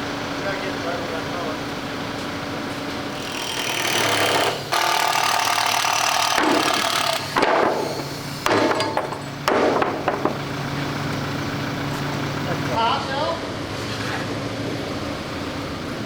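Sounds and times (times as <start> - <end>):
power tool running: 3.0 - 8.9.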